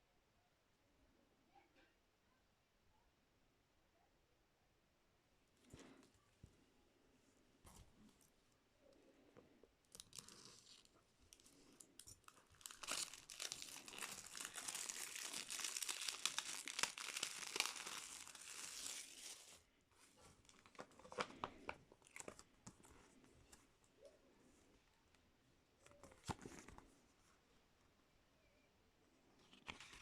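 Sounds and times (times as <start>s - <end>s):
plastic wrapping crinkling: 9.9s - 22.7s.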